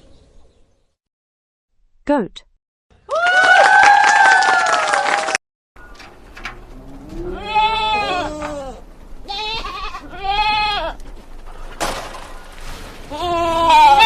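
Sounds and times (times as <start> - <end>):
goats bleating: 7.0 - 11.0, 13.1 - 14.0.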